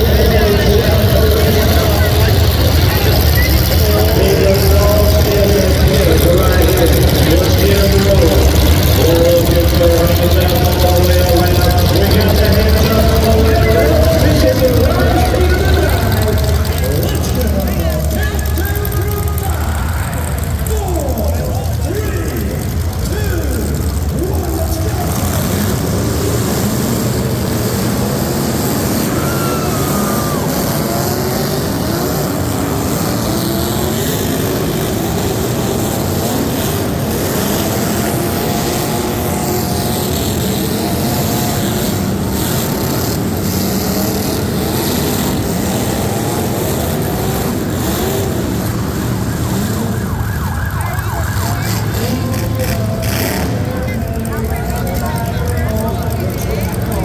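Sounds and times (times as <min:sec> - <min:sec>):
truck engines revving: 0:00.0 - 0:57.0.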